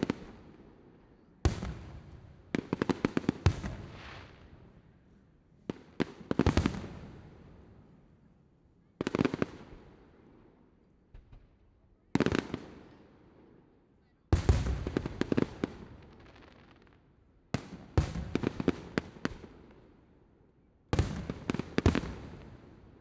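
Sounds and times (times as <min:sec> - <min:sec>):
fireworks bangs and cracks: 0:01.5 - 0:04.5, 0:05.7 - 0:07.4, 0:14.4 - 0:16.9, 0:21.0 - 0:22.6.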